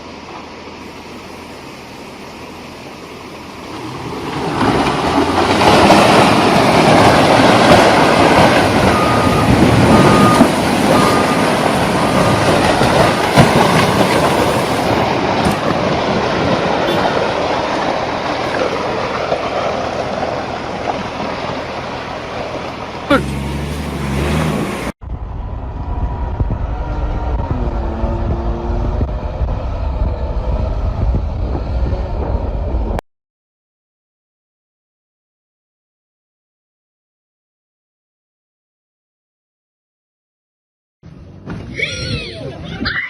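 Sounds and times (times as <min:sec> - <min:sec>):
heavy vehicle rumbling past: 0:01.3 - 0:33.0.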